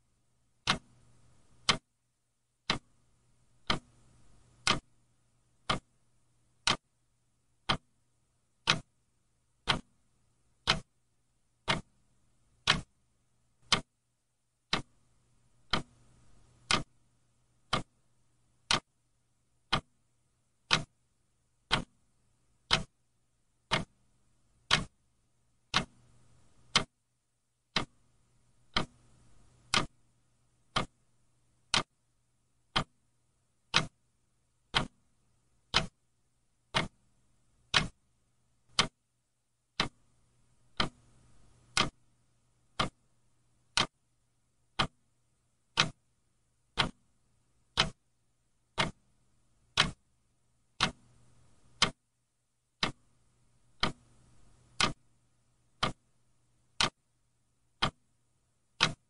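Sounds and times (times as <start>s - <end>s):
faint low hum: 0.0s - 58.8s
clock ticking: 0.6s - 1.9s, 2.6s - 3.0s, 3.6s - 4.9s, 5.6s - 6.0s, 6.6s - 6.8s, 7.6s - 7.9s, 8.6s - 8.9s, 9.6s - 10.0s, 10.6s - 11.0s, 11.6s - 12.0s, 12.6s - 13.0s, 13.6s - 13.9s, 14.6s - 15.0s, 15.6s - 17.0s, 17.6s - 18.0s, 18.6s - 19.0s, 19.6s - 20.0s, 20.6s - 21.0s, 21.6s - 22.0s, 22.6s - 23.0s, 23.6s - 24.0s, 24.6s - 25.0s, 25.6s - 27.0s, 27.7s - 28.0s, 28.6s - 30.0s, 30.6s - 31.0s, 31.6s - 32.0s, 32.7s - 33.0s, 33.6s - 34.0s, 34.7s - 35.0s, 35.6s - 36.0s, 36.7s - 37.1s, 37.7s - 38.0s, 38.7s - 39.0s, 39.7s - 40.1s, 40.7s - 42.1s, 42.7s - 43.1s, 43.7s - 44.0s, 44.7s - 45.0s, 45.7s - 46.0s, 46.7s - 47.1s, 47.7s - 48.1s, 48.7s - 49.1s, 49.7s - 50.1s, 50.7s - 52.0s, 52.8s - 53.1s, 53.7s - 55.1s, 55.8s - 56.1s, 56.8s - 57.0s, 57.8s - 58.1s, 58.8s - 59.0s.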